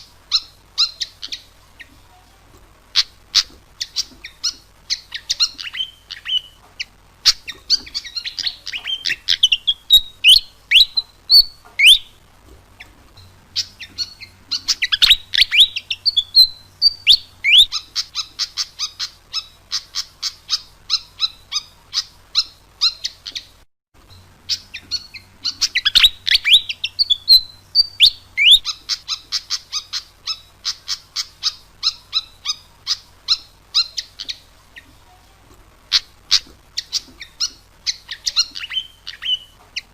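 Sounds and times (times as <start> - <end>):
bird singing sharp notes: 2.9 - 12.2, 12.8 - 23.5, 24.1 - 34.9.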